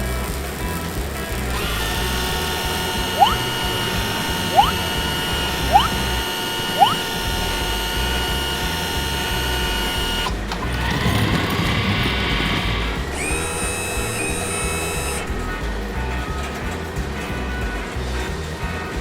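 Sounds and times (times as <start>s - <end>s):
short rising chirps: 1.5s - 10.3s
mechanical whirring: 1.5s - 15.5s.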